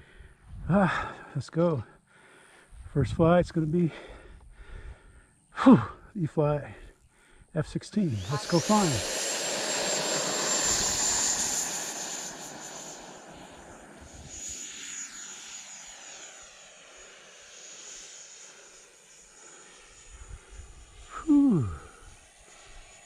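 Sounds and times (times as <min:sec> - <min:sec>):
electric ducted fan whine: 0:07.8 - 0:17.4.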